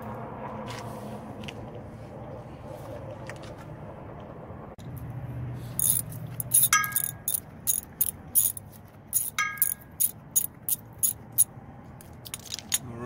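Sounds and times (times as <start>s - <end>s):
ringing metallic clinks: 5.8s - 8.6s, 9.2s - 11.2s
metal tools clicking: 5.8s - 12.9s.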